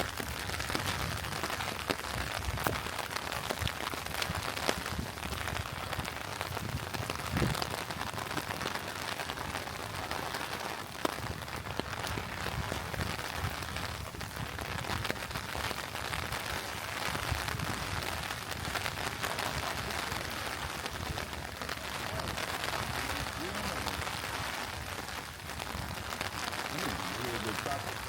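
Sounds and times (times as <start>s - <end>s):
raindrops ticking: 0.0s - 20.0s, 25.3s - 28.0s
rain falling: 0.0s - 28.0s.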